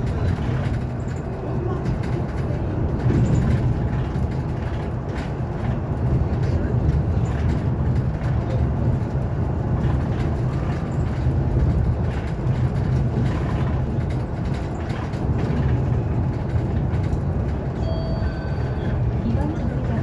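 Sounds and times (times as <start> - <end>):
road and tyre rumble in bus: 0.0 - 20.0.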